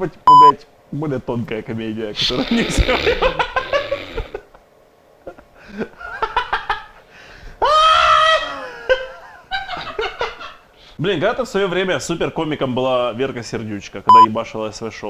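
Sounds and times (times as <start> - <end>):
men laughing: 2.2 - 10.7
high-pitched shriek of laughter: 7.6 - 9.1.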